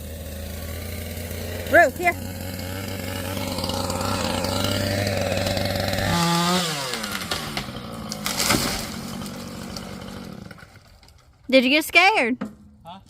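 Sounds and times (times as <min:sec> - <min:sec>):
chainsaw cutting and revving: 0:00.0 - 0:12.2
sharp crack: 0:06.0 - 0:11.2.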